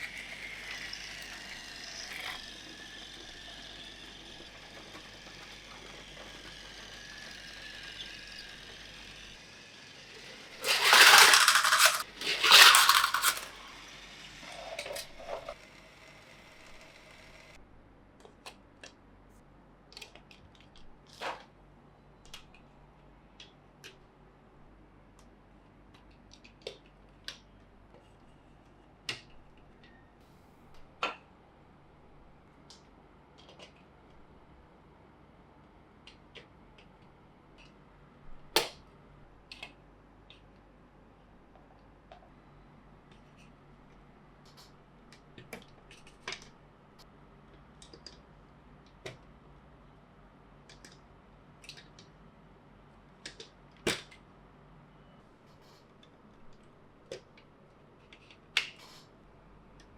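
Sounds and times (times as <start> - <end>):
plastic toy track clicking: 0.0 - 17.5.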